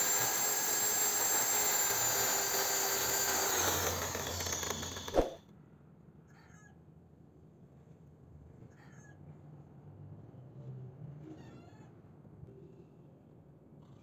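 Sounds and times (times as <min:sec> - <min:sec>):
electric drill running: 0:00.0 - 0:05.4.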